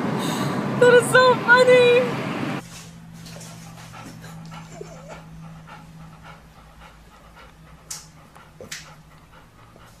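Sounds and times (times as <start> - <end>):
low hum: 0.0 - 10.0
dog panting: 2.7 - 10.0.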